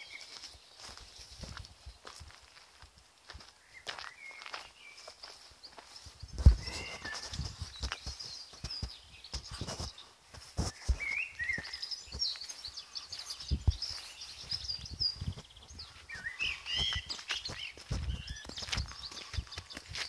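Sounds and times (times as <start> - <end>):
songbirds chirping: 0.0 - 20.0
footsteps thudding: 6.3 - 12.4, 13.4 - 14.6, 16.2 - 20.0.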